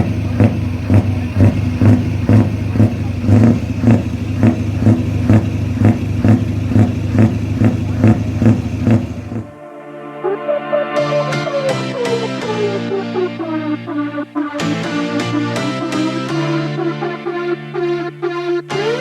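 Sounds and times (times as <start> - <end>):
diesel truck engine running: 0.0 - 9.6.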